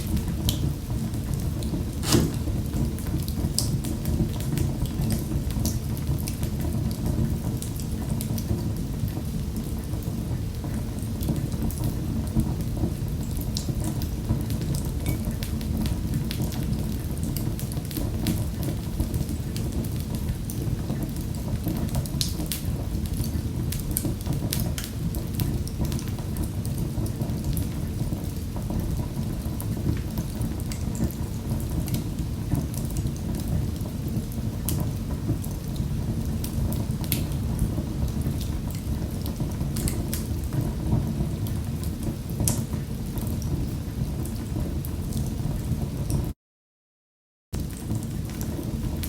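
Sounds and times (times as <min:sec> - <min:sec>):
low rumble of flames: 0:00.0 - 0:46.3, 0:47.6 - 0:49.0
wood fire crackling: 0:00.1 - 0:10.1
fire snaps and pops: 0:01.3 - 0:04.6, 0:36.4 - 0:40.5.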